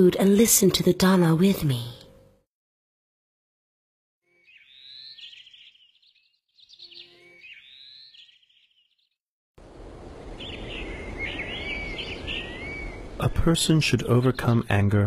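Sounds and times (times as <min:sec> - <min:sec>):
birds chirping: 0:04.3 - 0:09.2, 0:10.2 - 0:15.0
birdsong: 0:04.3 - 0:09.2, 0:10.3 - 0:15.0
steady outdoor hiss: 0:09.6 - 0:15.0.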